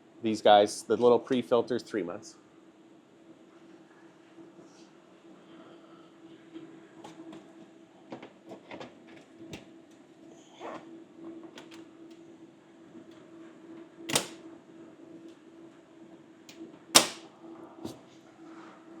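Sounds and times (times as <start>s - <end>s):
steady machinery hum: 0.0s - 19.0s
clicks and knocks of panel: 14.1s - 14.4s, 17.0s - 17.3s.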